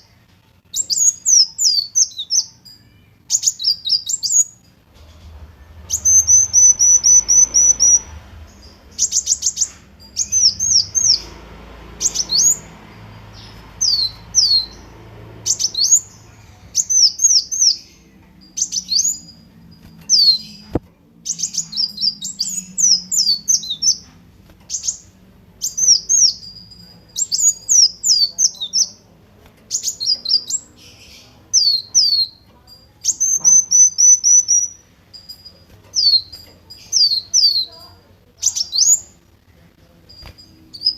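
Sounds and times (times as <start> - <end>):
bird singing with chirps and trills: 0.0 - 39.4, 40.0 - 40.9.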